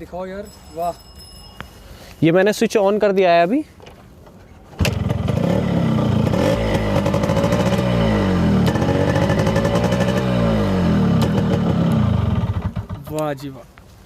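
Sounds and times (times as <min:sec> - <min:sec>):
two-stroke engine revving: 0:04.8 - 0:13.1.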